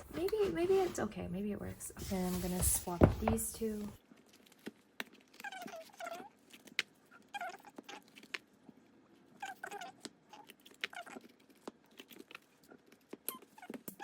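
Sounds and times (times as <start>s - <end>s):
plastic rubbing squeaks: 5.1s - 8.5s, 9.2s - 14.0s.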